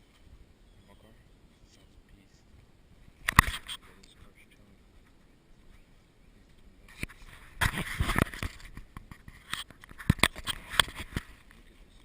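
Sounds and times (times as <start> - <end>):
scraping rustle: 6.6 - 12.0
sharp clicks and knocks: 6.9 - 11.6.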